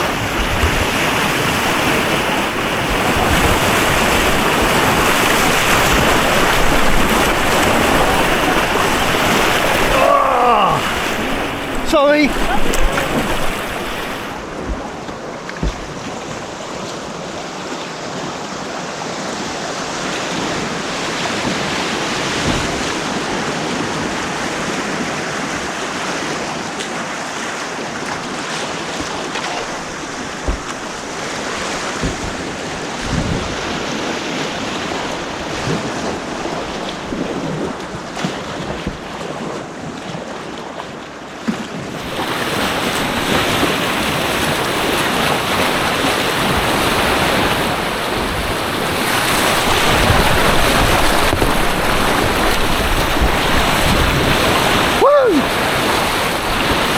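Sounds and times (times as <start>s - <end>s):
rushing white water: 0.0s - 56.9s
low thumps: 30.4s - 31.1s, 32.0s - 33.5s.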